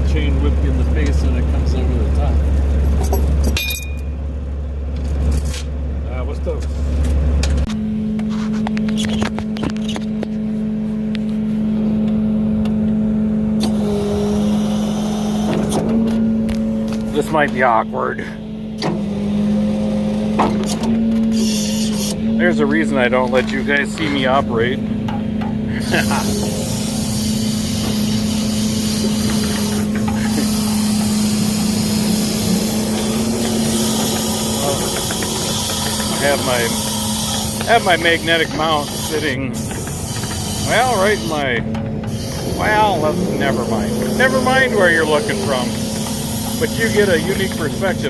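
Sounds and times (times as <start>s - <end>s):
diesel truck engine running: 0.0s - 48.0s
log loader operating: 0.0s - 48.0s
metal knocks and clanks: 32.7s - 40.6s, 41.6s - 43.0s.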